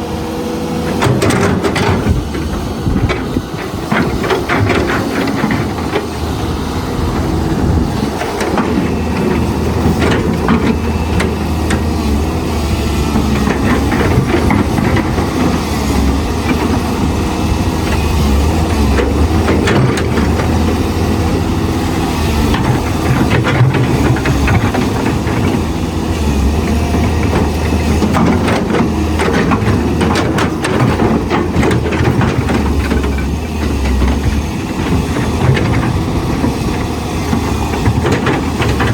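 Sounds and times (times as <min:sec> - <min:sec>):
excavator diesel engine: 0:00.0 - 0:38.9
metallic clanks and knocks: 0:00.9 - 0:06.2, 0:22.5 - 0:38.9.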